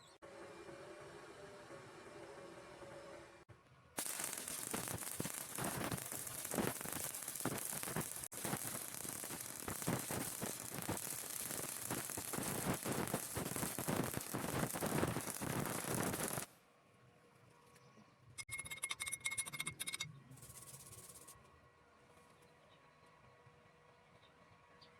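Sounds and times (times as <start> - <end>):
short rattling burst: 4.0 - 16.5
welding arc crackling and sizzling: 4.0 - 16.6.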